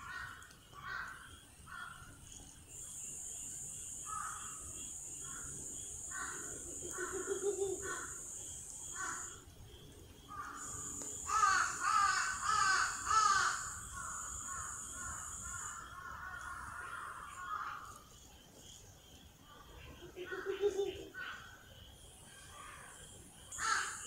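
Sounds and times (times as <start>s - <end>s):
high-pitched hiss: 2.2s - 24.0s
harsh cawing bird calls: 4.0s - 9.4s, 10.3s - 18.0s, 23.5s - 24.0s.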